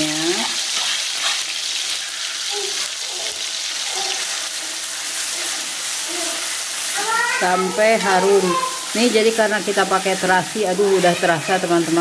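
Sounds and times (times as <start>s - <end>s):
spice paste sizzling in oil: 0.0s - 12.0s
spatula stirring in wok: 0.4s - 2.9s.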